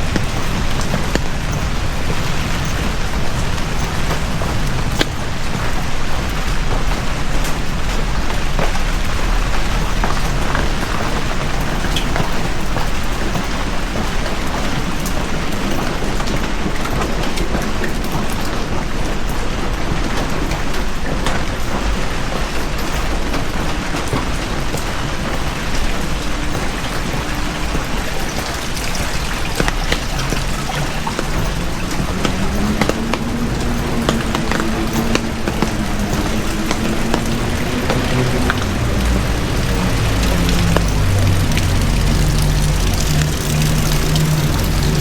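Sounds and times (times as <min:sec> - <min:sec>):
heavy rain falling: 0:00.0 - 0:45.0.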